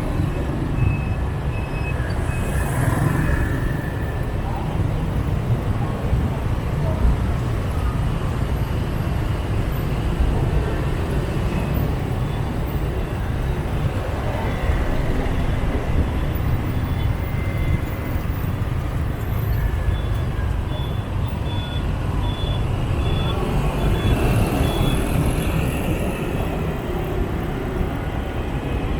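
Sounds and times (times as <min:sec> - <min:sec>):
street traffic rumble: 0:00.0 - 0:28.9.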